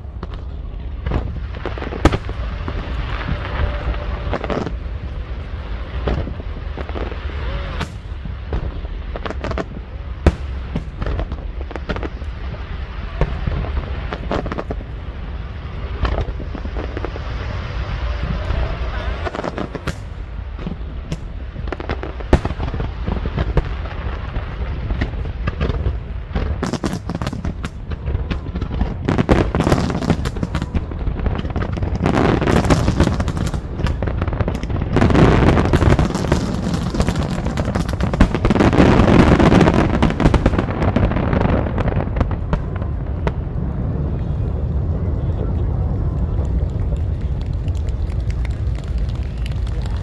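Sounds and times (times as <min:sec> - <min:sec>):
low rumble: 0:00.0 - 0:26.6, 0:35.6 - 0:50.0
fireworks bursting and crackling: 0:00.0 - 0:50.0.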